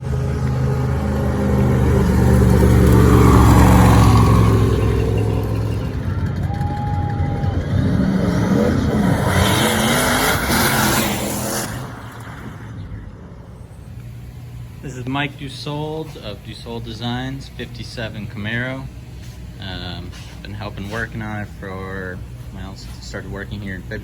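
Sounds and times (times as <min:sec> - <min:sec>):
race car engine running loud: 0:00.0 - 0:15.4.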